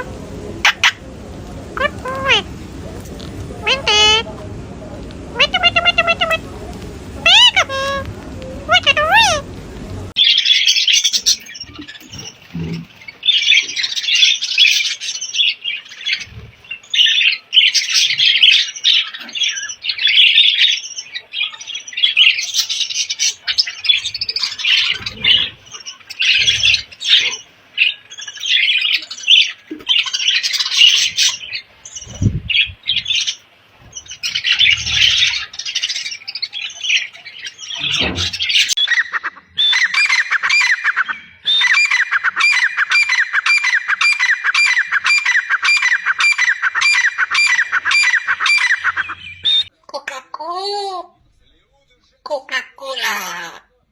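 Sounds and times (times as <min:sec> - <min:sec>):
parrot screeching: 0:03.6 - 0:04.3, 0:05.4 - 0:06.5, 0:07.2 - 0:08.0, 0:08.7 - 0:09.5, 0:32.8 - 0:49.7.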